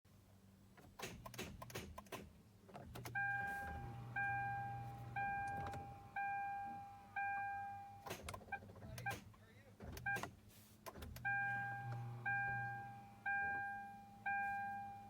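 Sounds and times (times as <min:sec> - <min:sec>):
dashboard warning chime: 0:03.2 - 0:08.0, 0:11.2 - 0:15.0.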